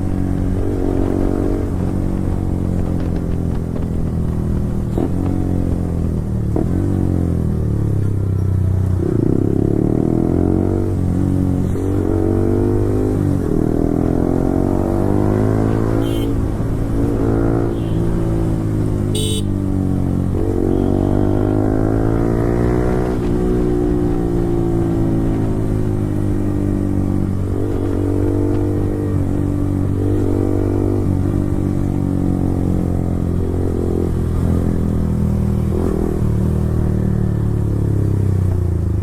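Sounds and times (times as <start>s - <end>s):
motorcycle engine revving: 8.8s - 39.0s.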